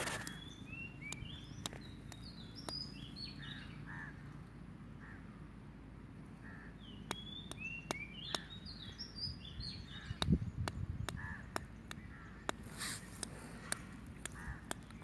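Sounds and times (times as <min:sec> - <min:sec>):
birds chirping: 0:00.0 - 0:15.0
outdoor background noise: 0:00.0 - 0:15.0
sharp clicks: 0:01.0 - 0:03.0, 0:07.0 - 0:08.6, 0:10.0 - 0:15.0.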